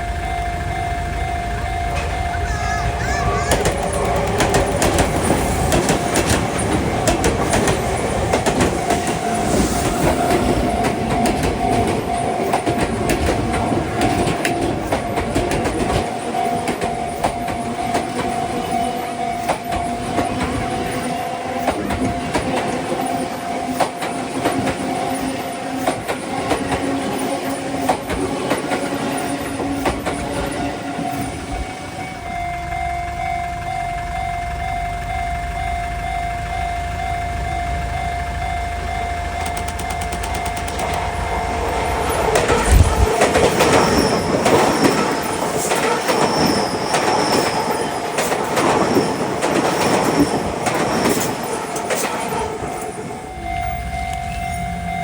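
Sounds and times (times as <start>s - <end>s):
level crossing warning bell: 0.0s - 55.0s
train wheels clicking over rail joints: 0.0s - 55.0s
wheel squeal: 39.4s - 55.0s.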